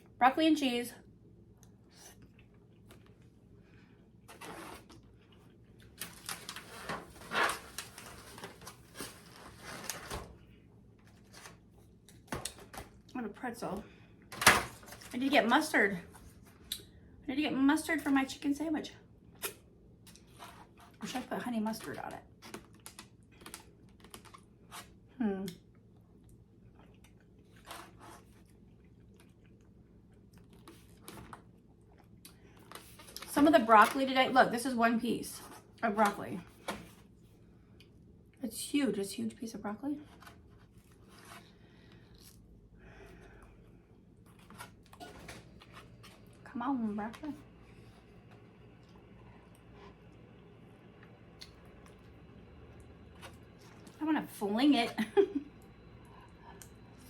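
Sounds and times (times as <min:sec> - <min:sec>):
food containers rustling and clicking: 0:05.9 - 0:10.4
chewing and mouth sounds: 0:28.4 - 0:31.0.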